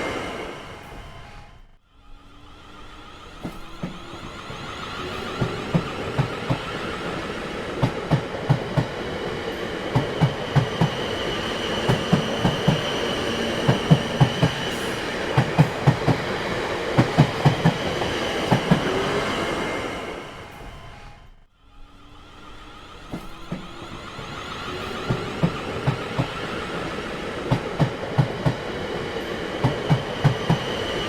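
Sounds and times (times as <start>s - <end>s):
train wheels clacking over rail joints: 3.4s - 19.3s, 23.1s - 31.0s.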